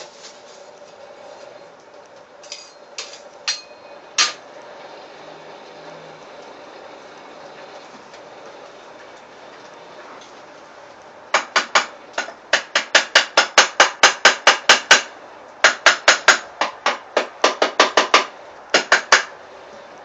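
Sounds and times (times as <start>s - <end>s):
hammer ringing on anvil: 3.5s - 4.4s.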